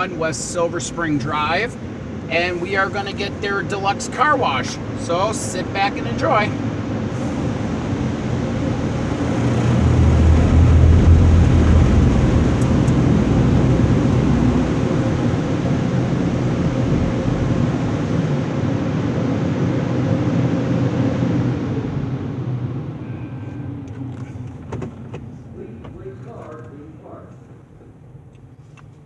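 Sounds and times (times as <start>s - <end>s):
car wash rushing: 0.0s - 27.3s
low rumble: 6.5s - 20.6s.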